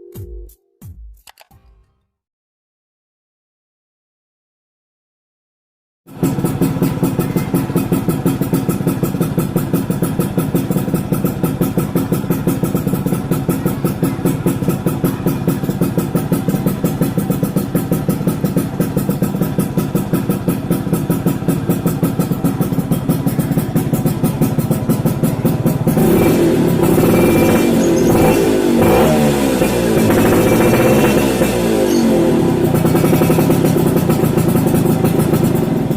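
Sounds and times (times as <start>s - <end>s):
background music: 0.0s - 2.0s
two-stroke engine idling: 6.1s - 35.9s.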